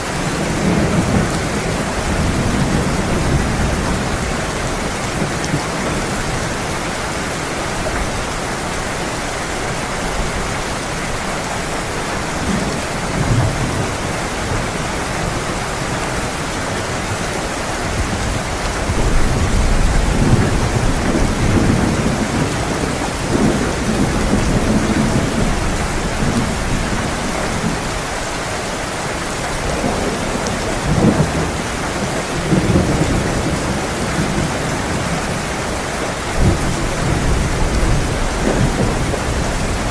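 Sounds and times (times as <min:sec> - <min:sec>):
thunder rumbling: 0:00.0 - 0:06.9, 0:09.5 - 0:28.0, 0:29.4 - 0:39.9
heavy rain: 0:00.0 - 0:39.9.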